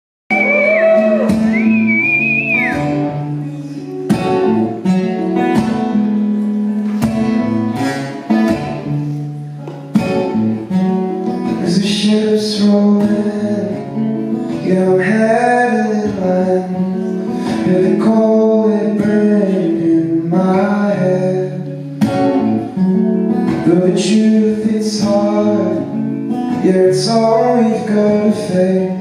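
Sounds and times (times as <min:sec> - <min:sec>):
guitar chords strummed: 0:00.3 - 0:29.0.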